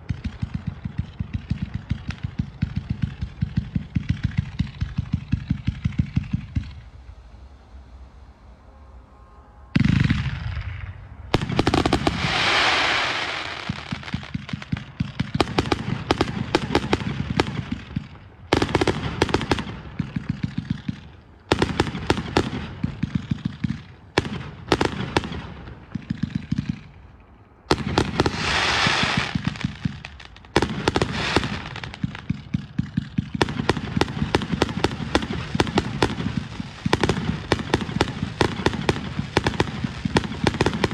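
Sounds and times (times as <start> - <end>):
fireworks cracking and popping: 0.0 - 7.2, 9.8 - 40.9
fireworks hissing and crackling: 0.0 - 9.1, 9.8 - 40.9
firework bang: 9.7 - 23.2.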